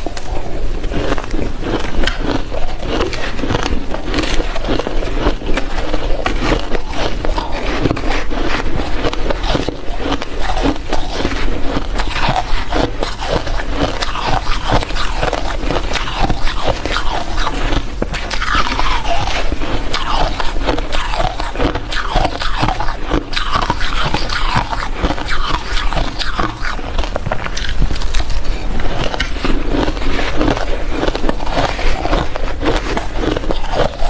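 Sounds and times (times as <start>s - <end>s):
ice being chewed and crunched: 0.0s - 34.0s.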